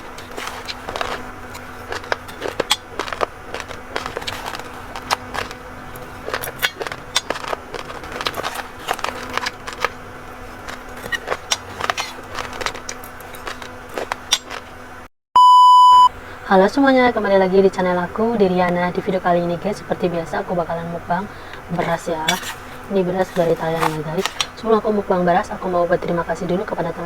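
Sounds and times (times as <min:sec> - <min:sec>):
rice crunching between teeth: 0:00.0 - 0:15.0, 0:20.8 - 0:25.7
faint steady hum: 0:00.0 - 0:27.0.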